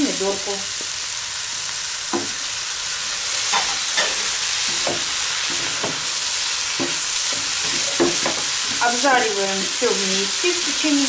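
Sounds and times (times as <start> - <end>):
food sizzling in a wok: 0.0 - 11.0
wooden spatula scraping and knocking pan: 6.8 - 8.8.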